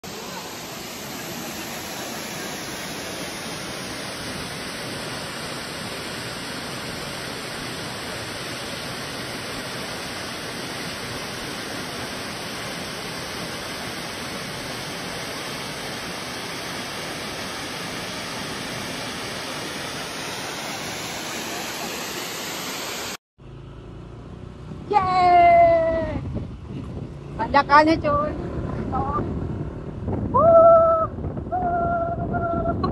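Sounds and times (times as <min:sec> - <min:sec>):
steady rushing noise: 0:00.0 - 0:23.2.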